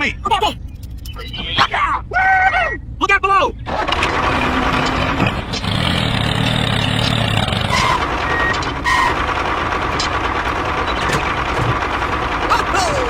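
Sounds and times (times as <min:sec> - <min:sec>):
vehicle engine running: 0:02.7 - 0:13.0.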